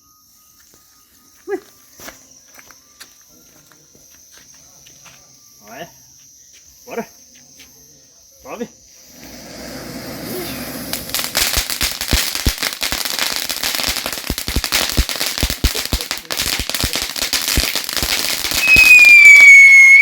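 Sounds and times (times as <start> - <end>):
firework hissing: 9.0 - 20.0
firework crackling pops: 9.2 - 20.0.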